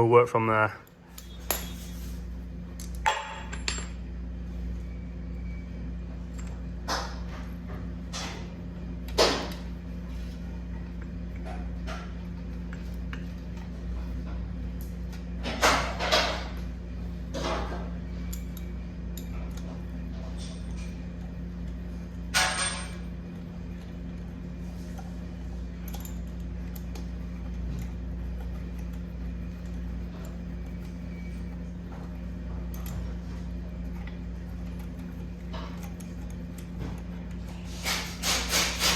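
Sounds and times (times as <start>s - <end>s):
low workshop hum: 0.0s - 38.9s.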